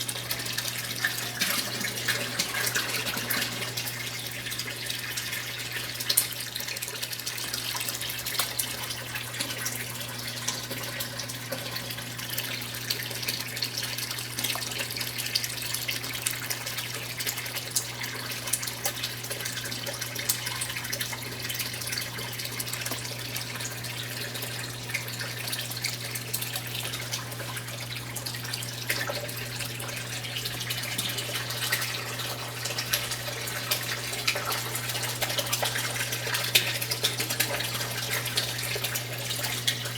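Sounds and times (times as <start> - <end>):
low machine hum: 0.0 - 6.7
water splashing in washing machine: 0.0 - 39.9.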